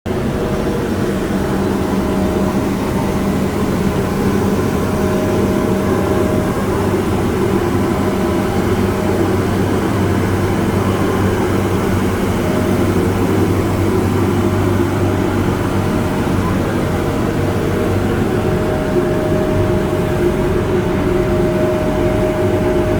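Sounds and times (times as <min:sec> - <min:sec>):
street sweeper engine drone: 0:00.1 - 0:22.9.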